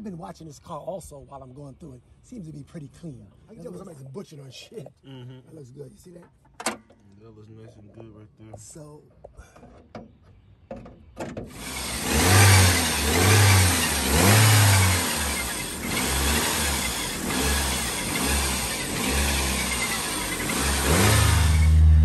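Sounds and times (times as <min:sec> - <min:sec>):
car engine starting and revving: 0:11.5 - 0:22.0.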